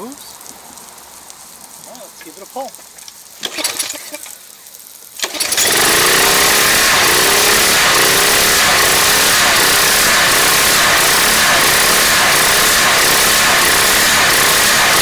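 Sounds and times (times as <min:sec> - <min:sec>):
recoil cord pull-start: 0:03.4 - 0:04.0, 0:05.2 - 0:15.0
pressure washer engine running: 0:03.4 - 0:04.2, 0:05.2 - 0:15.0.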